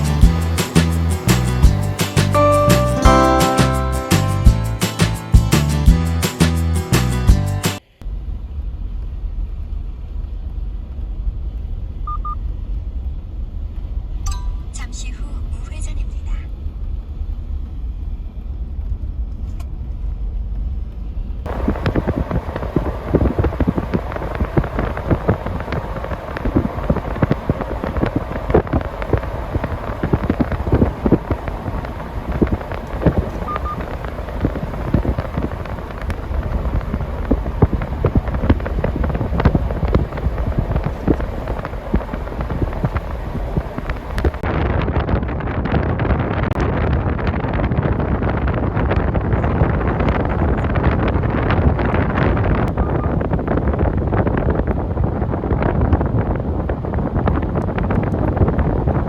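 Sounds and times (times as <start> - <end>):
wind buffeting the microphone: 0.0 - 3.4, 21.5 - 59.0
car road rumble: 0.0 - 7.2, 21.5 - 44.4.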